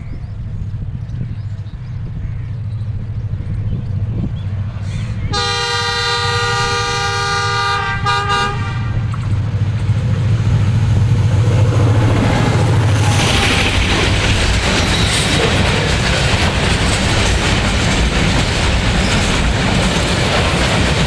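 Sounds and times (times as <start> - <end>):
locomotive engine running: 0.0 - 21.0
locomotive horn blast: 5.2 - 10.2, 11.2 - 15.4.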